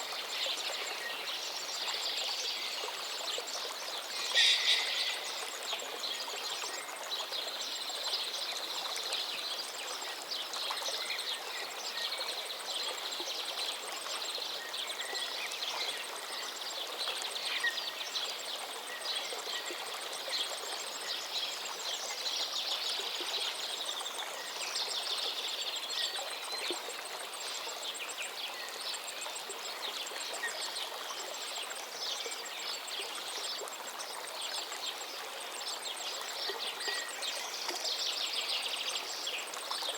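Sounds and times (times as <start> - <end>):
high chirping calls: 4.2 - 5.4.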